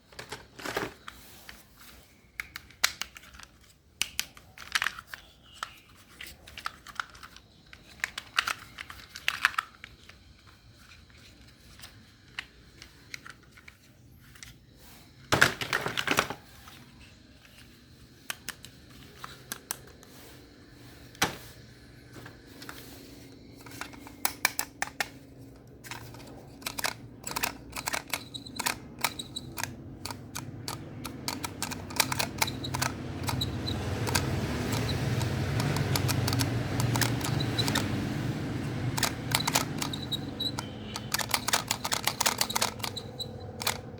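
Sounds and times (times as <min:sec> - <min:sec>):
plastic toys clicking together: 0:02.3 - 0:14.6, 0:23.5 - 0:43.9.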